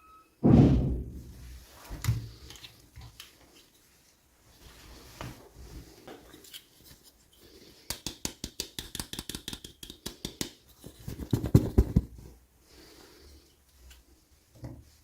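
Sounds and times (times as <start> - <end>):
heavier knocks: 0.4 - 1.4.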